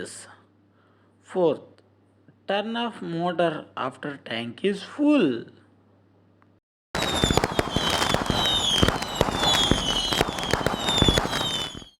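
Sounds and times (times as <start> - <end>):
dense crackling and popping: 7.0 - 12.0
high falling whistle: 7.0 - 12.0.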